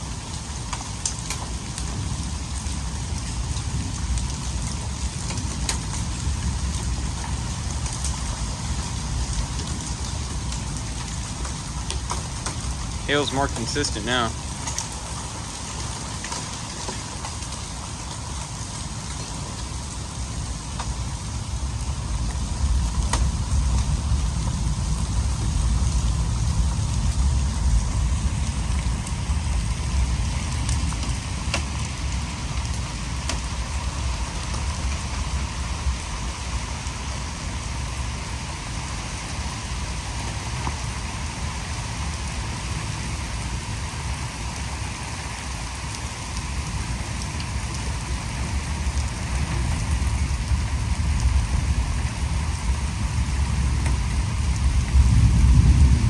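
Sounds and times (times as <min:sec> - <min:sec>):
rain and hail falling: 0:00.0 - 0:56.0
deep rumble: 0:19.6 - 0:56.0.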